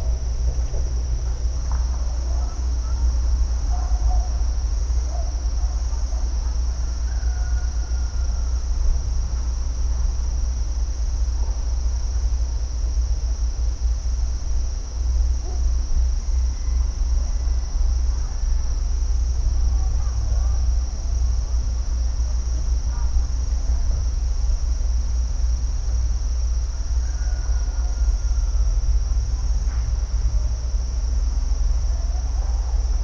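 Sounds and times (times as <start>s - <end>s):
heavy low rumble: 0.0s - 3.7s
high-pitched insect chorus: 0.0s - 33.0s.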